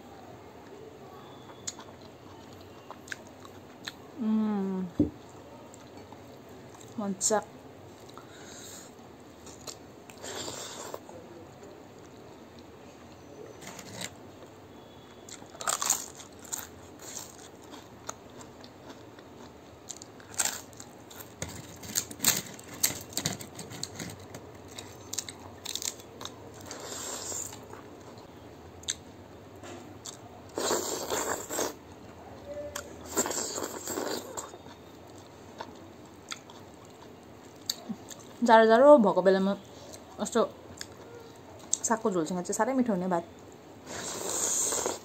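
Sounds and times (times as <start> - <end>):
person chewing and crunching: 15.3 - 27.8, 32.7 - 38.3.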